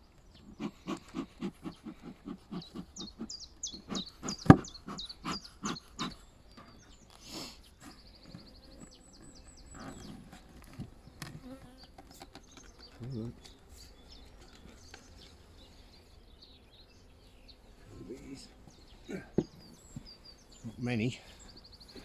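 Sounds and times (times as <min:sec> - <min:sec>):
small birds singing: 0:00.0 - 0:22.0.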